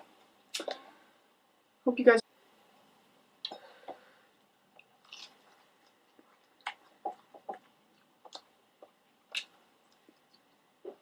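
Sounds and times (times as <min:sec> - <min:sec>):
crisp eating crackles: 0:04.7 - 0:11.0.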